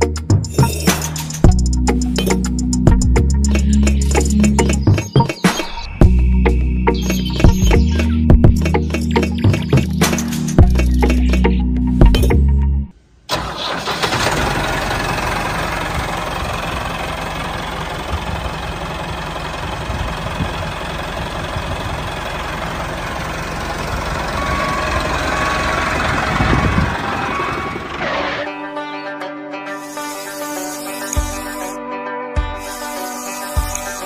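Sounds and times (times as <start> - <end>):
tractor engine idling: 13.3 - 28.4.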